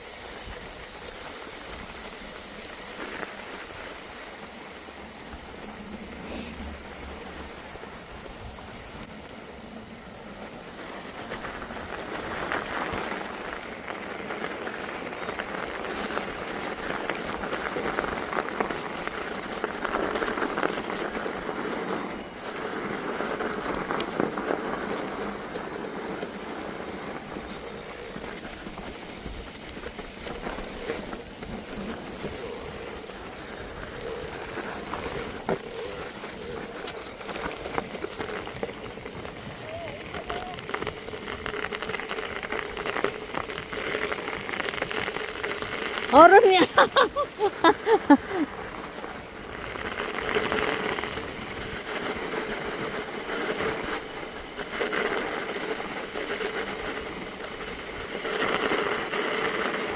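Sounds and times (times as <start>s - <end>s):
bicycle rolling over snow: 0.0s - 59.9s
sharp clicks: 8.6s - 10.0s.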